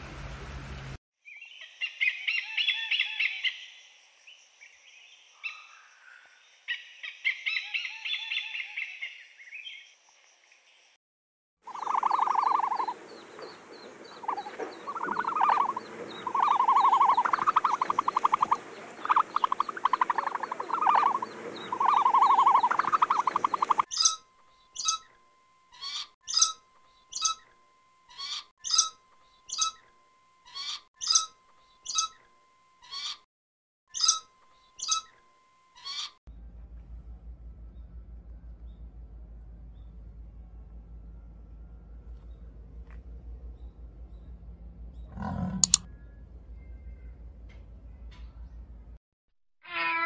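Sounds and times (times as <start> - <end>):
rapid pulsed animal call: 11.6 - 25.1, 44.9 - 45.9
hornbill barking calls: 11.7 - 24.2, 45.0 - 45.8
faint steady whistle tone: 45.9 - 47.6.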